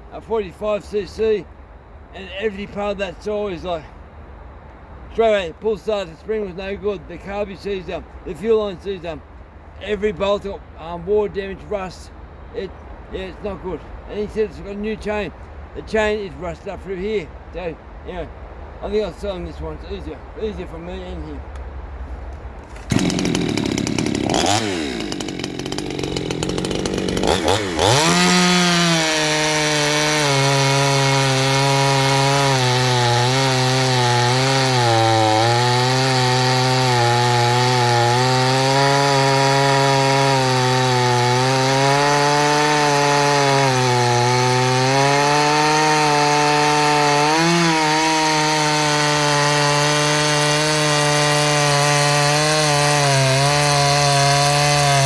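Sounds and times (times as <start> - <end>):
chainsaw cutting wood: 22.6 - 55.0.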